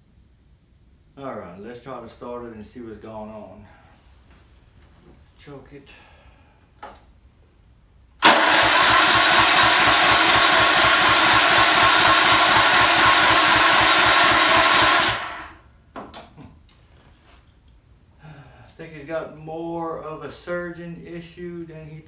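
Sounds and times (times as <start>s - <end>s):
electric starter: 8.2s - 15.6s
small gas engine running: 8.2s - 15.6s.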